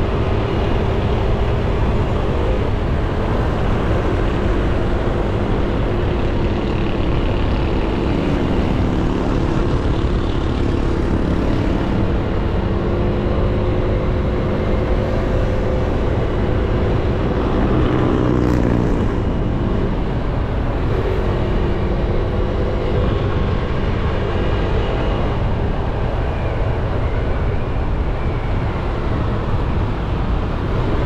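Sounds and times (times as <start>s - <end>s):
muffled wind and road noise: 0.0s - 31.0s.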